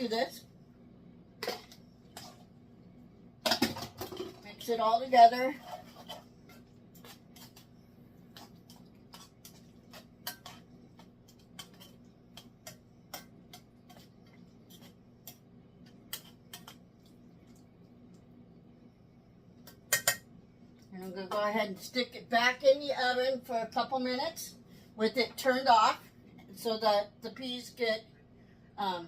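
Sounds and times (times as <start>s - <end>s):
low steady hum: 0.0s - 29.0s
utensil stirring peas in skillet: 1.4s - 18.2s.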